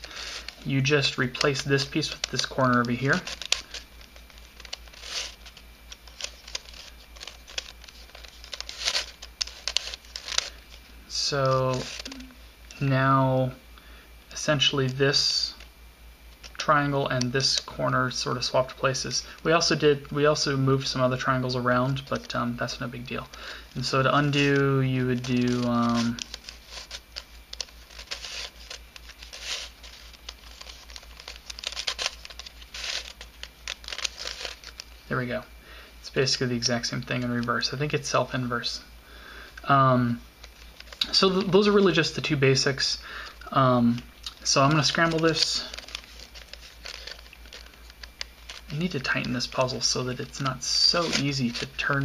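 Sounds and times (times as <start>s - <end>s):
plastic puzzle clicking and scraping: 0.0s - 10.8s, 11.4s - 12.2s, 23.2s - 34.9s, 44.4s - 52.0s.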